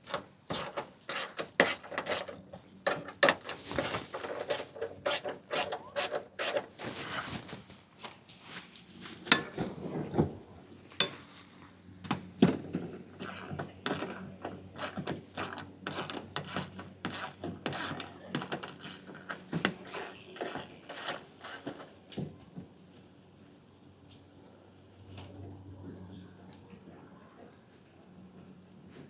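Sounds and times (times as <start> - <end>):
clicks and rattles of hand work: 0.0 - 7.7, 12.1 - 22.7.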